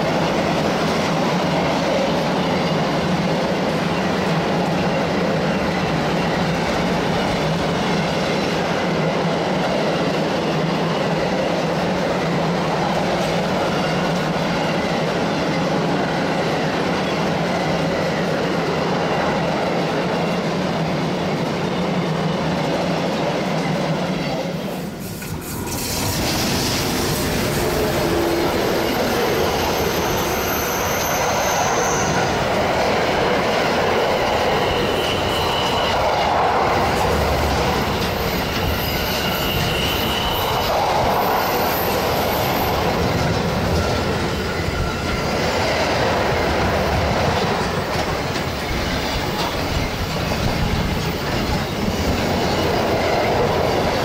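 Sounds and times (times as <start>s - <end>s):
train rail clatter: 0.0s - 54.0s
high wheel squeals: 24.8s - 54.0s.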